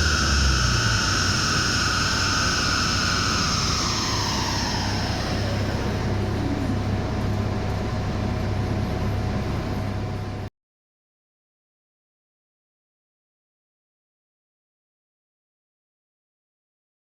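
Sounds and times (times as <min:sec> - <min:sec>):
engine high whine: 0:00.0 - 0:10.5
low engine hum: 0:00.0 - 0:10.5.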